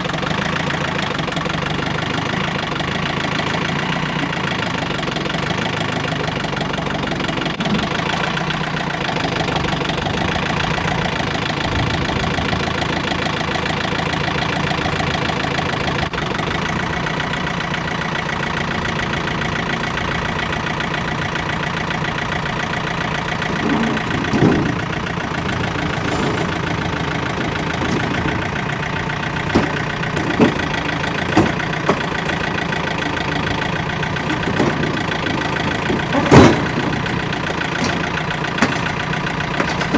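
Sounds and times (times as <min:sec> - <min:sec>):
loading machine engine running: 0:00.0 - 0:39.9
sharp knocks and thumps: 0:23.4 - 0:39.9.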